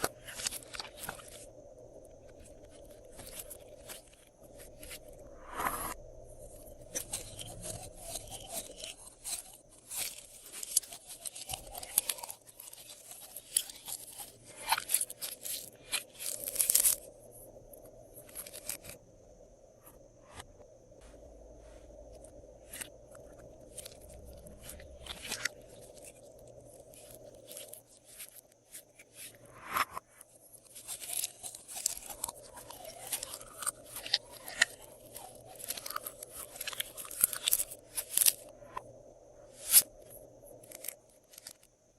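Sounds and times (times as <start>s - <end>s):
slime crunching and crackling: 6.9s - 17.1s, 23.6s - 28.4s, 30.6s - 38.5s.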